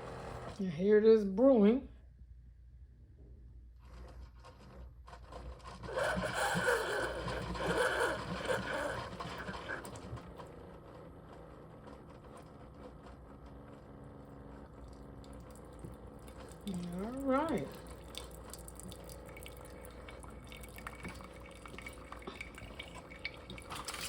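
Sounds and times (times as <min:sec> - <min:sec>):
coffee maker humming: 0:00.0 - 0:00.7, 0:03.1 - 0:24.0
hot water hissing and sputtering: 0:06.0 - 0:10.0, 0:15.9 - 0:24.0.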